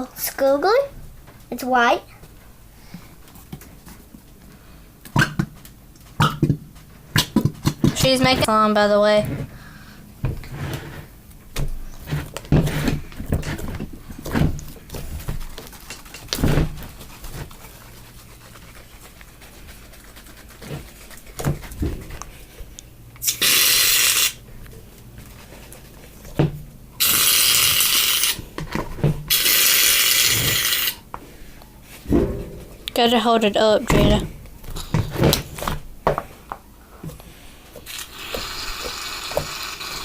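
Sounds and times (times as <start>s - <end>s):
aerosol spray hissing: 23.2s - 24.4s, 37.9s - 40.0s.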